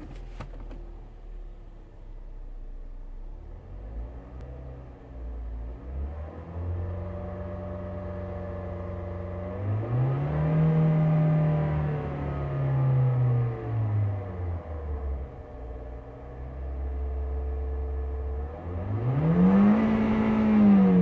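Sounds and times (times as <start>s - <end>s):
car engine revving: 18.5s - 21.0s.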